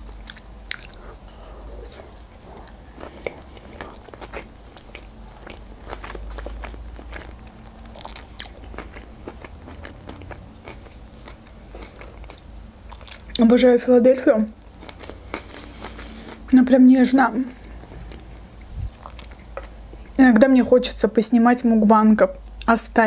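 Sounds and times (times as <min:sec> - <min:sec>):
person chewing food: 0:00.0 - 0:13.4, 0:14.5 - 0:16.5, 0:17.5 - 0:20.2.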